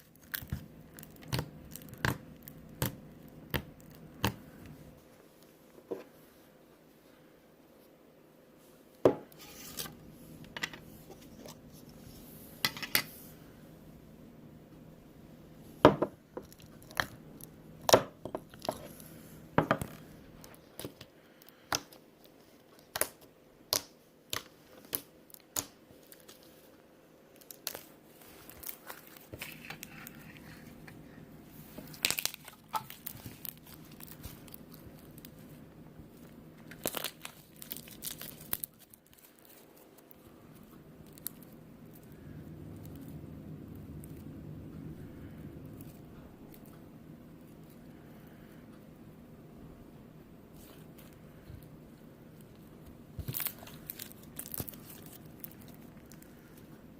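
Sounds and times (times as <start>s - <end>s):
slime popping and crackling: 0.0s - 4.5s, 31.9s - 35.4s, 36.7s - 40.2s, 53.1s - 56.3s.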